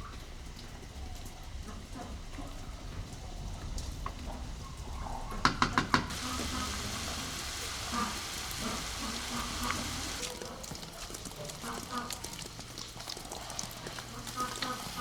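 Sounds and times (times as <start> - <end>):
food sizzling in a pan: 6.1 - 15.0.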